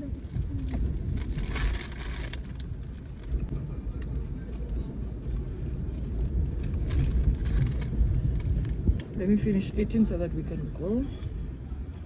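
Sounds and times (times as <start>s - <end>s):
uneven low rumble: 0.0s - 12.0s.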